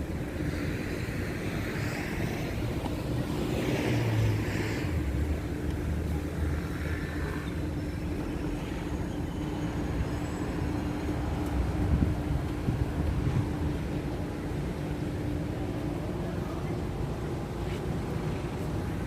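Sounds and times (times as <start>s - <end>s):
wind buffeting microphone: 10.0s - 19.0s.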